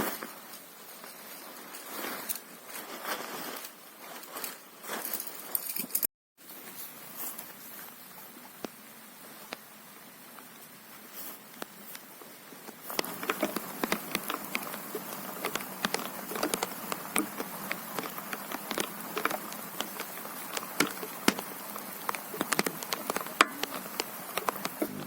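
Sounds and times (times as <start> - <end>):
rain tapping on tent fabric: 12.7 - 25.0.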